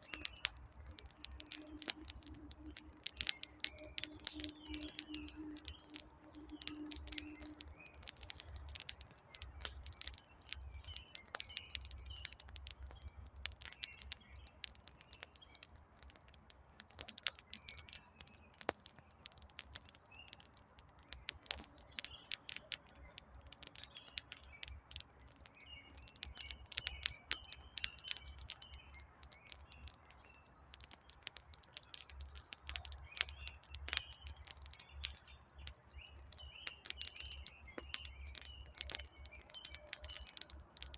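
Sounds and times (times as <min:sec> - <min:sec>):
campfire crackling: 0:00.0 - 0:40.9
small birds chirping: 0:00.0 - 0:40.9.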